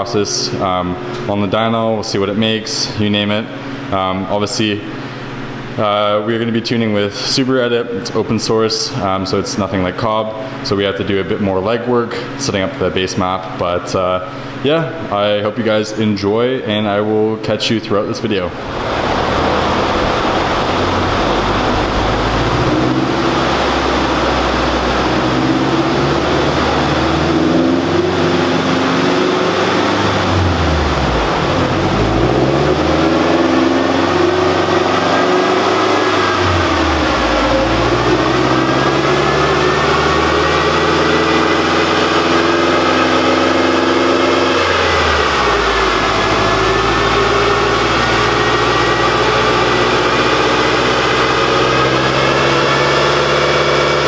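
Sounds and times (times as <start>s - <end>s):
car engine revving on a dyno: 18.5s - 54.0s.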